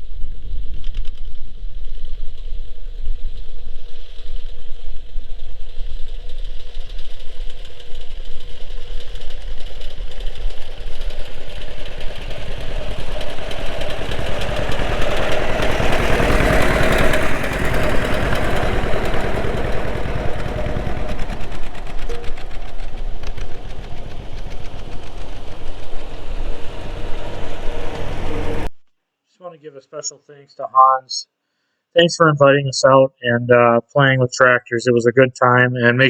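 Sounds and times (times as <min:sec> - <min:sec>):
tractor engine running: 0:04.7 - 0:28.7.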